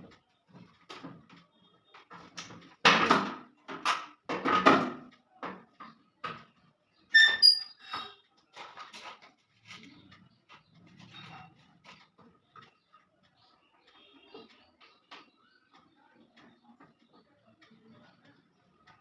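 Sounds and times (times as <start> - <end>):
knocks and scrapes on metal: 2.0 - 6.6, 7.2 - 12.8
short high squeak: 7.2 - 8.2.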